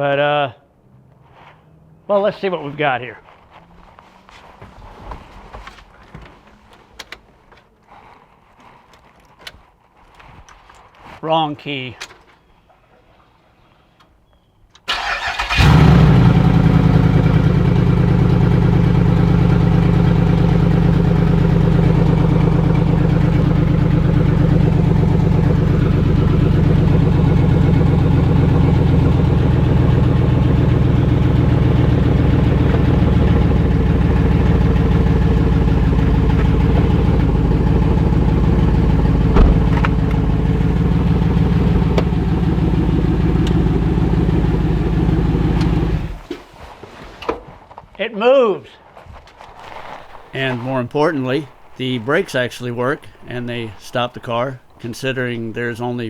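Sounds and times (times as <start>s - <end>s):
car engine starting and idling: 14.9s - 46.4s, 49.6s - 56.0s
light knock: 39.4s - 40.0s.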